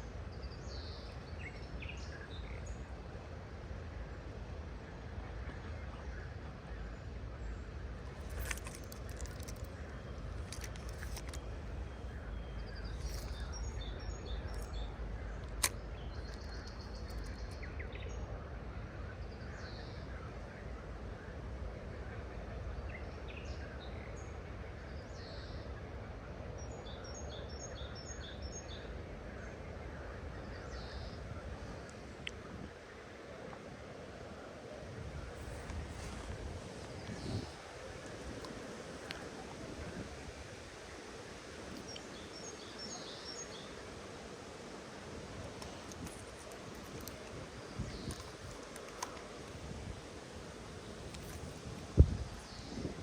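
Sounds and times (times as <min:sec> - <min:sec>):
birds chirping: 0:07.6 - 0:18.1, 0:41.6 - 0:53.0
sharp clicks: 0:45.6 - 0:49.6.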